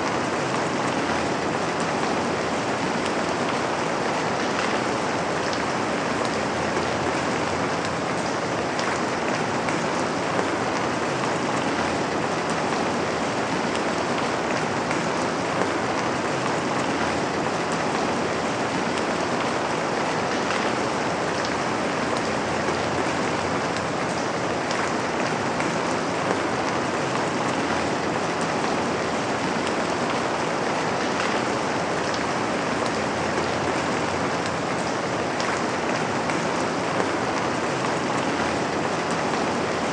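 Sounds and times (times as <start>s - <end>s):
rain on a window: 0.0s - 39.9s.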